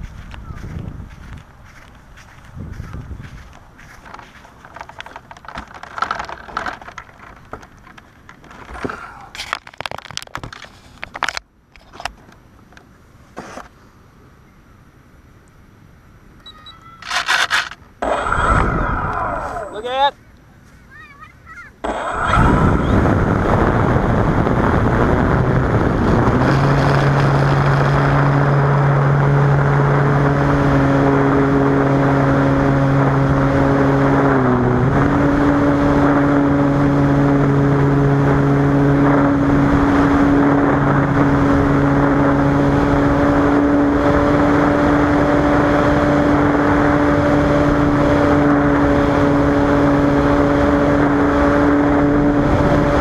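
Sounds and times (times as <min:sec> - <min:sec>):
propeller plane engine running: 0:00.0 - 0:11.4, 0:17.0 - 0:20.1, 0:21.8 - 0:53.0
dense rushing noise: 0:18.0 - 0:20.1, 0:21.8 - 0:31.7.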